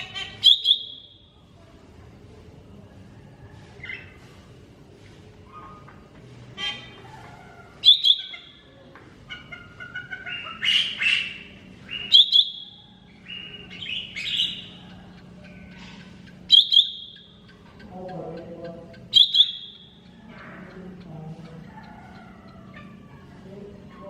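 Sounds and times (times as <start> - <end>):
bird singing: 0.0 - 1.3, 7.8 - 8.7, 10.2 - 24.0
faint steady hum: 0.0 - 24.0.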